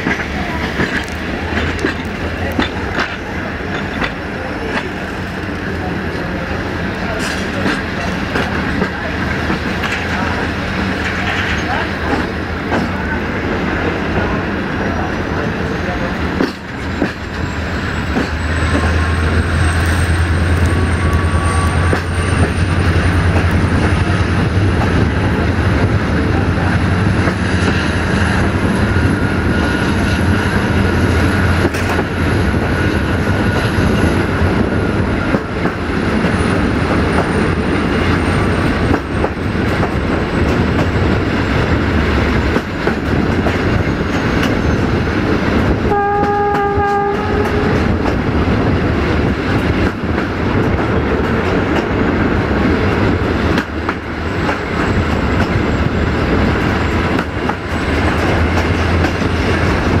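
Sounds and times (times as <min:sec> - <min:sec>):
train rumble with wheel clicks: 0:00.0 - 1:00.0
locomotive horn blast: 0:45.9 - 0:47.9.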